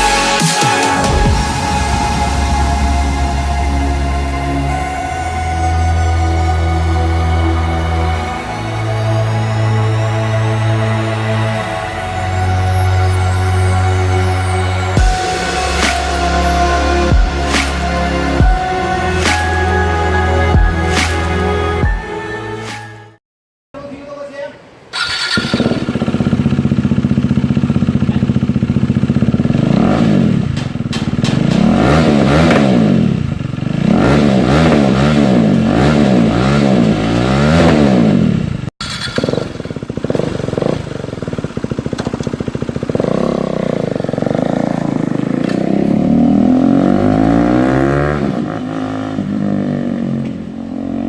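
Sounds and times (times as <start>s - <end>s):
motorcycle engine revving: 24.9s - 51.0s.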